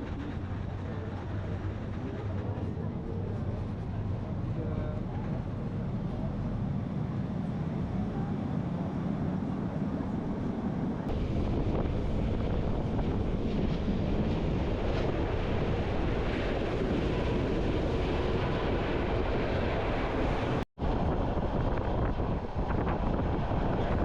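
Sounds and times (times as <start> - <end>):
train rumble: 0.0 - 24.0
wind buffeting microphone: 0.0 - 24.0.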